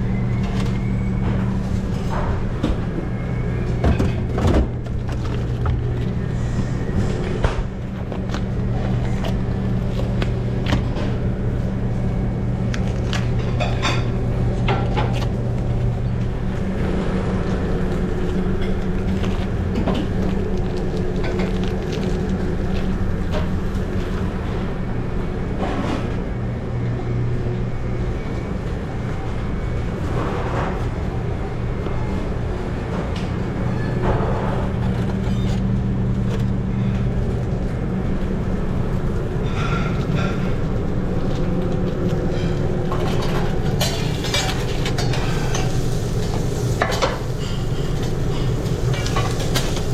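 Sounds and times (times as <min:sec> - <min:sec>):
low machine hum: 0:00.0 - 0:49.9
pans and utensils clinking: 0:42.3 - 0:49.9.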